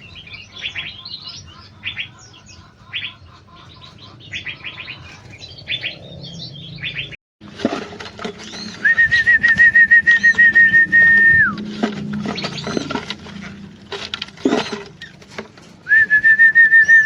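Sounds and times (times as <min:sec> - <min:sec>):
small birds chirping: 0:00.0 - 0:07.2, 0:08.1 - 0:09.2, 0:12.1 - 0:13.6.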